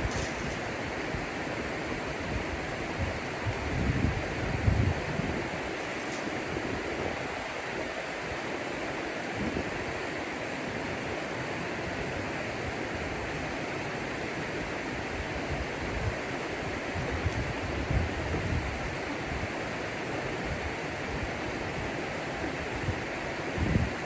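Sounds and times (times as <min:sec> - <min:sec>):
wind rumble on microphone: 0:00.0 - 0:08.0, 0:09.3 - 0:10.0, 0:15.2 - 0:19.6, 0:22.6 - 0:24.0.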